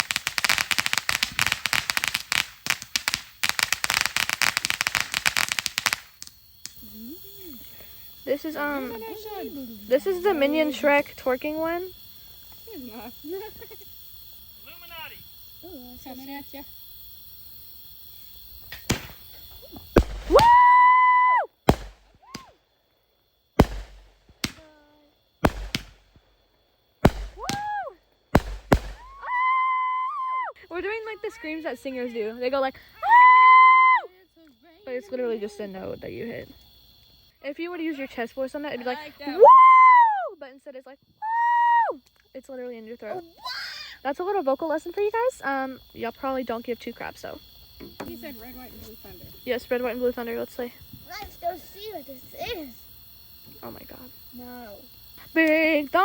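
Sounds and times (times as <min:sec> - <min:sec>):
firework crackling and popping: 0:00.0 - 0:08.2, 0:18.1 - 0:22.7, 0:23.6 - 0:29.7
people whooping: 0:19.6 - 0:21.6, 0:22.2 - 0:22.6, 0:27.3 - 0:28.0, 0:28.9 - 0:30.7, 0:33.0 - 0:34.1, 0:39.3 - 0:40.4, 0:41.2 - 0:42.0.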